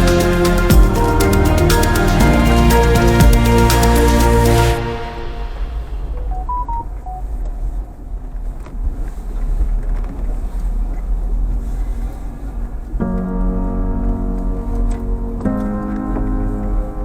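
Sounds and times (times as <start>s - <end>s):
background music: 0.0s - 7.2s.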